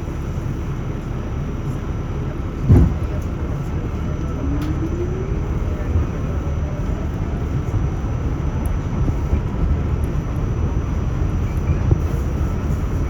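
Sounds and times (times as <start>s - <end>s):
subway train wheels rumbling: 0.0s - 13.0s.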